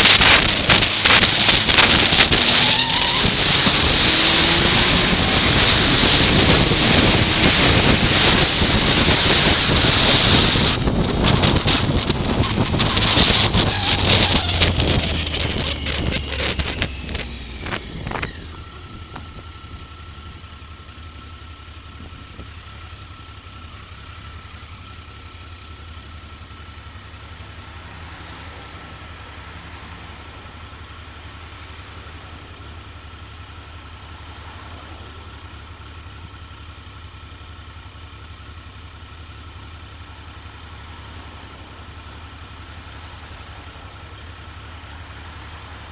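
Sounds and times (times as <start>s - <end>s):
wind buffeting microphone: 0.0s - 20.0s
motorcycle engine idling: 0.0s - 45.9s.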